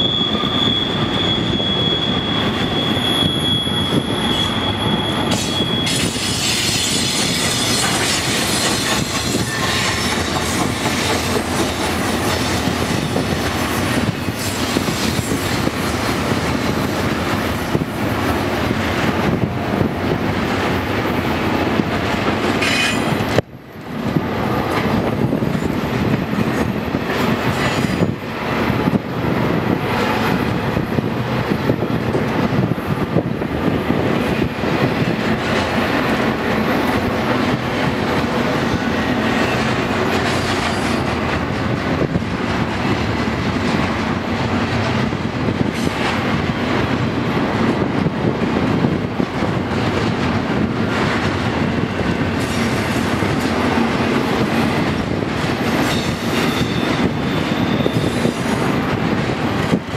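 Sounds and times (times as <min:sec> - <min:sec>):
steel wheels rumbling on rail: 0:00.0 - 0:59.9
train wheels clacking: 0:00.0 - 0:59.9.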